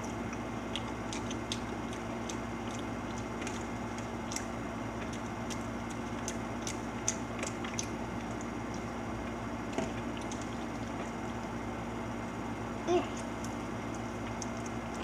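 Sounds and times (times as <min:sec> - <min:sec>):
person chewing food: 0:00.0 - 0:09.0, 0:13.0 - 0:15.0
steady room hum: 0:00.0 - 0:15.0.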